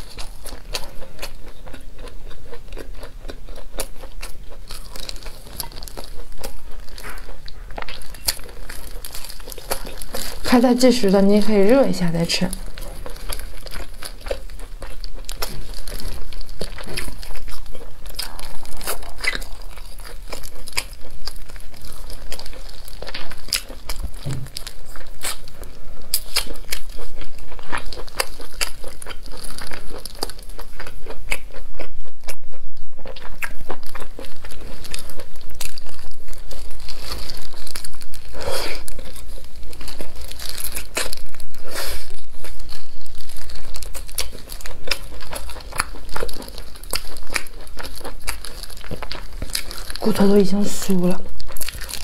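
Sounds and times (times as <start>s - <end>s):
chewing and crunching food: 0.0s - 52.0s
plastic glove crinkling: 4.8s - 27.0s, 34.3s - 52.0s.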